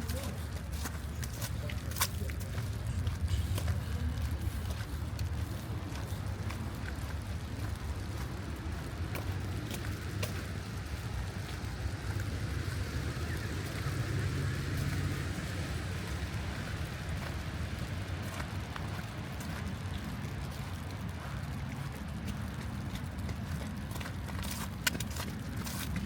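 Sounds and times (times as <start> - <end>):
traffic rumble: 0.0 - 26.0
vehicle passing: 2.6 - 20.2.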